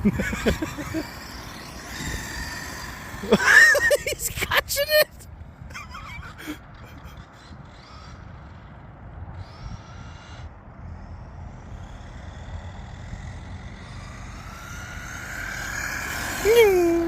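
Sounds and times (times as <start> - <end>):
electric motor whining: 0.0 - 4.2, 7.7 - 17.0
wind and road rumble: 0.0 - 17.0.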